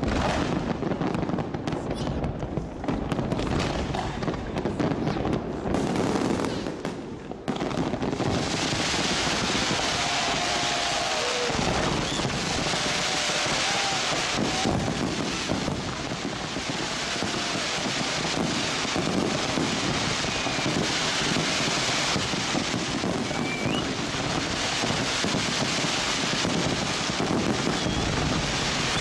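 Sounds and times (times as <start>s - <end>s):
fireworks crackling and rumbling: 0.0s - 29.0s
rising firework whistles: 8.0s - 29.0s.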